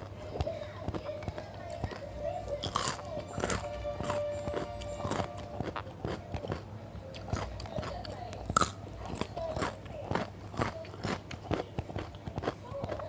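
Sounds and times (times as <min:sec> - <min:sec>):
chewing and crunching vegetables: 0:00.0 - 0:13.0.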